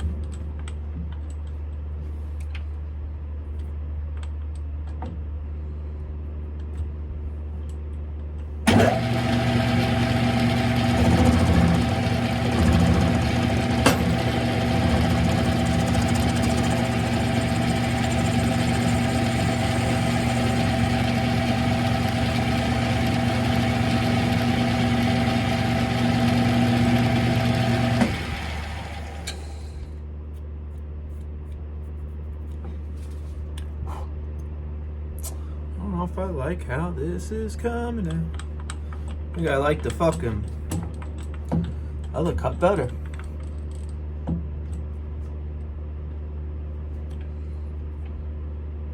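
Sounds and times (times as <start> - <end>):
low steady hum: 0.0 - 48.9
lathe whining and cutting: 8.7 - 29.8.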